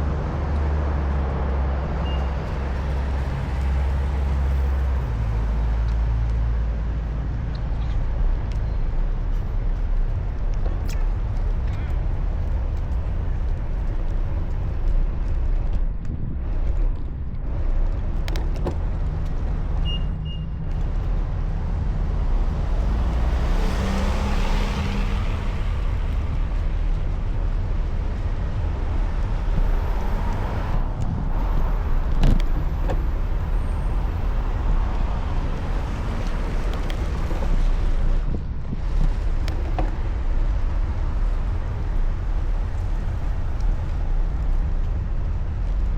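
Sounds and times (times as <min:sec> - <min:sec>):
road traffic rumble: 0:00.0 - 0:45.9
vehicle passing: 0:20.7 - 0:45.9.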